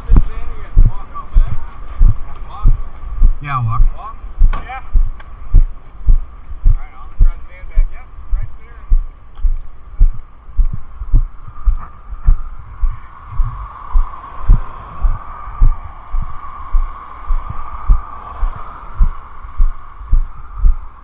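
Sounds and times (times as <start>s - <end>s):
dull muffled thumps: 8.9s - 19.2s.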